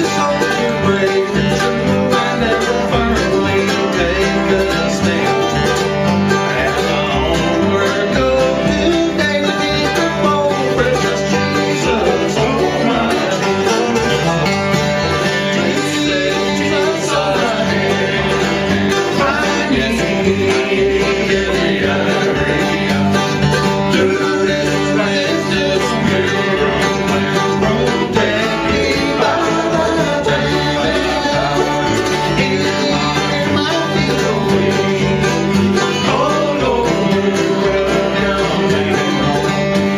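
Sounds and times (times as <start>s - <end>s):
bluegrass band playing: 0.0s - 39.9s
person singing: 0.0s - 39.9s.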